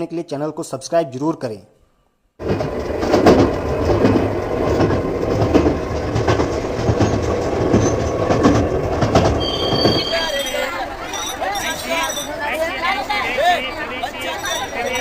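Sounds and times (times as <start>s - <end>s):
train rumbling on rails: 2.4s - 12.2s
wheel clatter: 2.4s - 12.8s.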